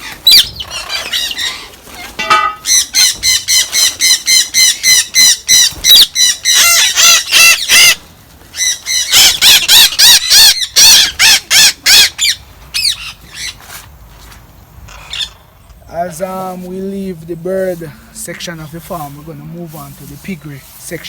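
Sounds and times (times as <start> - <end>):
parrots screeching: 0.0 - 13.6, 14.9 - 15.5.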